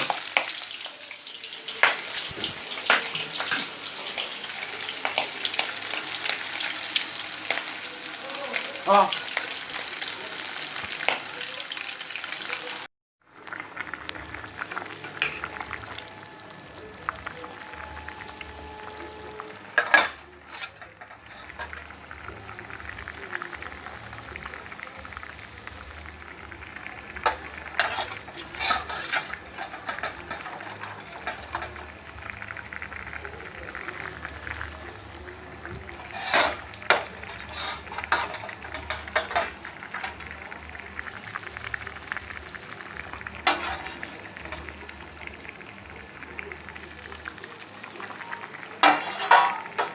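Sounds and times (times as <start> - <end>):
food sizzling in hot oil: 0.0 - 49.9
utensil scraping a pan: 19.8 - 22.0, 27.2 - 32.0, 35.9 - 40.2, 43.4 - 44.3, 48.8 - 49.9.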